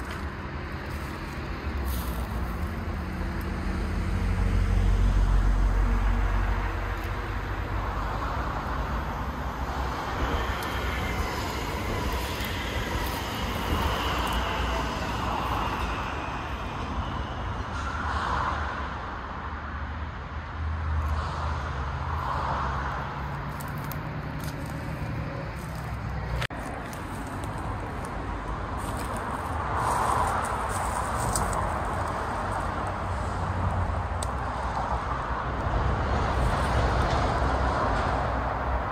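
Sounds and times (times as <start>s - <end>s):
train wheels rumbling on rails: 5.8s - 18.4s, 23.2s - 38.9s.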